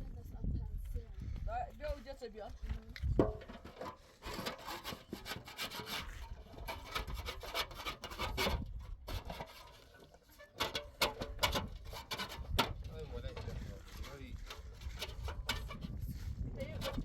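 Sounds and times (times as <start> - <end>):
scraping strokes: 3.5 - 17.0.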